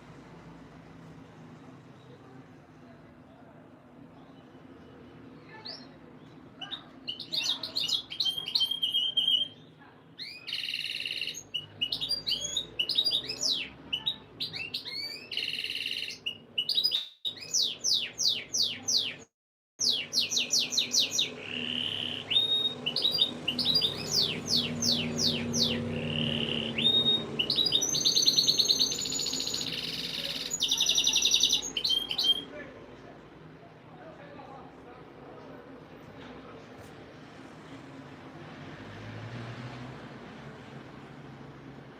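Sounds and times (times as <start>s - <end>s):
canary singing trills: 5.4s - 32.5s.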